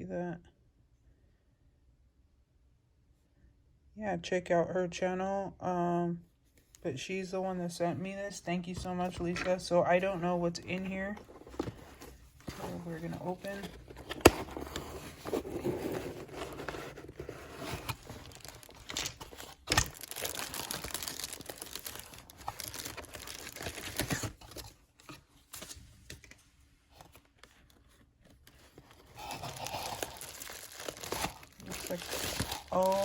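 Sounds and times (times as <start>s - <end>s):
packaging tearing and rustling: 11.2s - 25.8s, 26.9s - 33.0s
scratching: 28.5s - 33.0s.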